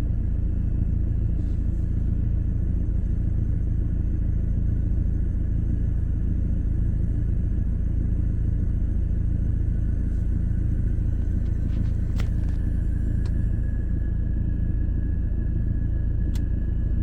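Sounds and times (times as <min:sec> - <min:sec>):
low cabin rumble: 0:00.0 - 0:17.0.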